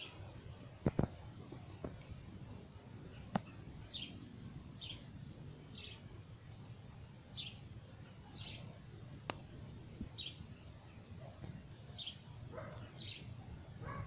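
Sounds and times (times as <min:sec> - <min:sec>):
bird chirping: 0:03.0 - 0:06.2, 0:07.3 - 0:14.0.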